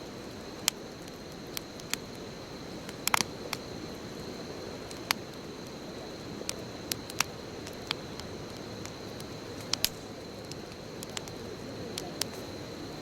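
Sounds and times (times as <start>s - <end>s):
burning wood crackling and popping: 0.0s - 13.0s
bonfire flames rushing: 0.1s - 13.0s.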